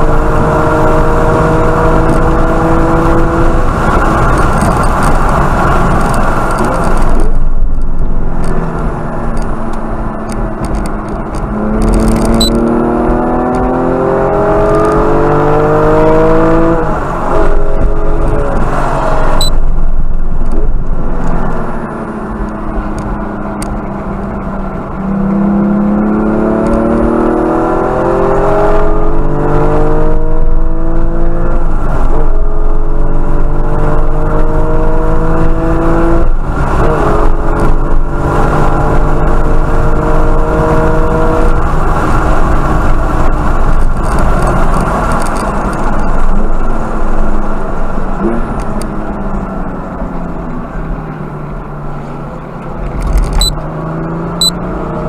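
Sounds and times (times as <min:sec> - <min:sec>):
car engine at full throttle: 0:00.0 - 0:55.0.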